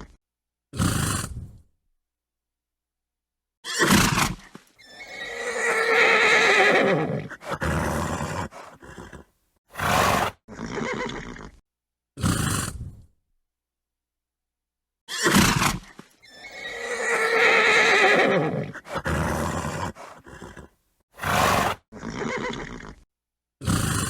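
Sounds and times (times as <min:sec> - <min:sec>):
horse snorting: 0:00.8 - 0:01.6, 0:03.8 - 0:11.6, 0:12.2 - 0:13.0, 0:15.2 - 0:23.0, 0:23.6 - 0:24.0
horse whinnying: 0:03.6 - 0:11.6, 0:15.1 - 0:23.1.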